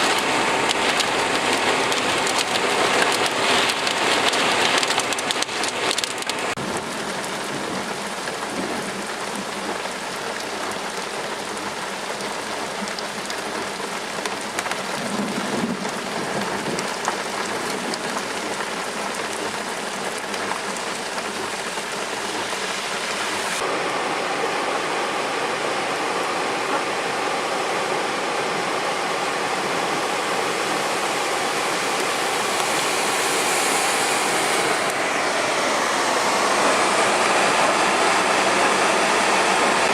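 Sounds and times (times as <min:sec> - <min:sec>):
hard rain hissing: 0:00.0 - 0:39.9.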